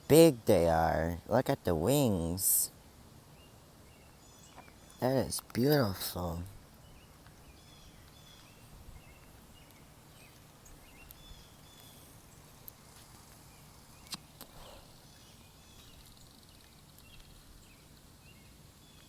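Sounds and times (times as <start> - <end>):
distant small birds chirping: 0.0 - 19.0.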